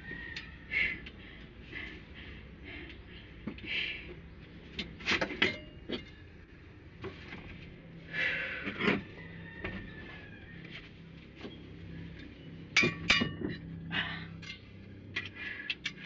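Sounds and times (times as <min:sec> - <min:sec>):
tools and metal parts clinking: 0:04.7 - 0:06.4, 0:12.1 - 0:16.0.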